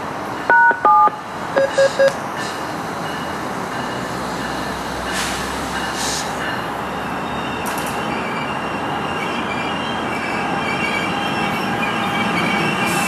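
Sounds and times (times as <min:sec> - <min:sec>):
short electronic beeps: 0:00.5 - 0:02.2
train wheels and motors running: 0:01.3 - 0:13.0
brief air hisses: 0:05.1 - 0:06.4.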